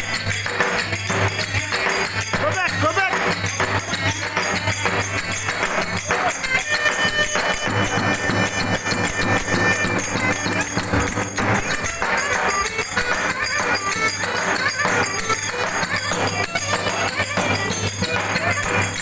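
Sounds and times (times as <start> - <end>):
drum beat: 0.0 - 19.0
jingling cymbal strokes: 0.0 - 19.0
shrill reed-pipe notes: 4.4 - 19.0.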